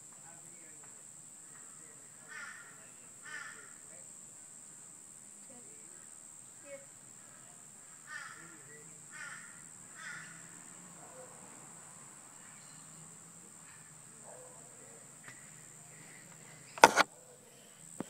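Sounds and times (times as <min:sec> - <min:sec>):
faint high whine: 0:00.0 - 0:18.0
bird calling: 0:07.9 - 0:10.5.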